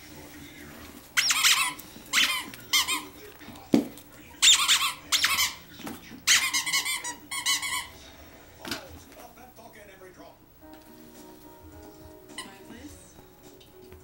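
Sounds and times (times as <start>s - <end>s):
squeaky dog toy squeaking: 1.2s - 3.2s, 4.4s - 8.0s, 12.3s - 12.6s.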